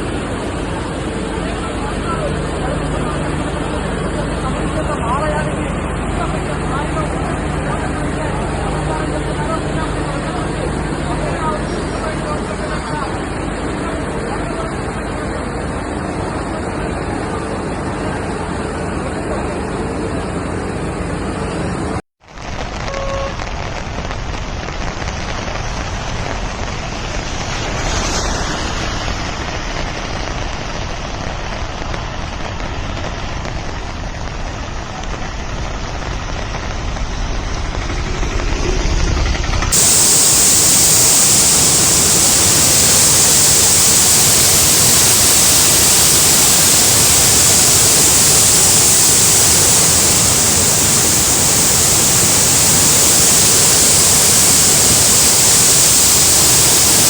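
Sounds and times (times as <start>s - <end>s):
floodwater rushing: 39.7s - 57.0s.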